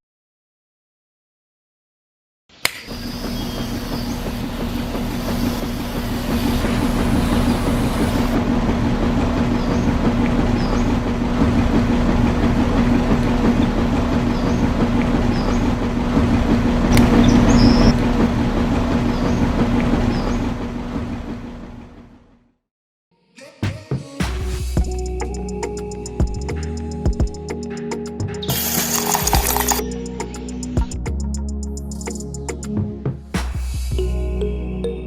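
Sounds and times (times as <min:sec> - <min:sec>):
noisy rattle: 0:02.9 - 0:21.5, 0:24.6 - 0:32.6.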